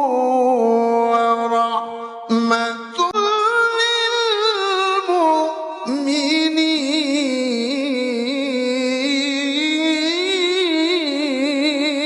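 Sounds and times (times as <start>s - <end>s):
person chanting recitation: 0.0s - 12.0s.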